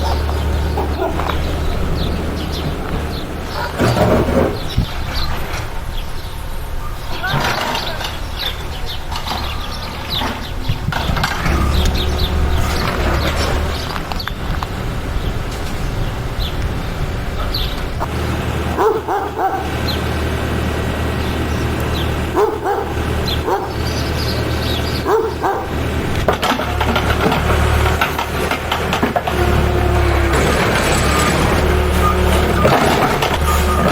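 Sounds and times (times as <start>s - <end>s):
dog barking: 0.7s - 1.3s, 18.8s - 19.7s, 22.3s - 23.8s, 25.0s - 25.8s
steady low rumble: 10.6s - 18.1s.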